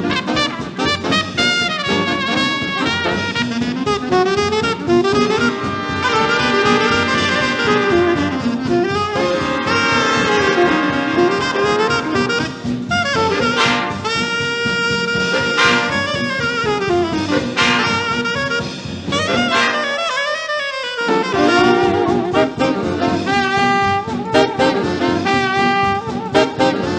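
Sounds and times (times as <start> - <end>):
drum kit beat: 0.0 - 26.9
saxophones and brass playing: 0.0 - 26.9.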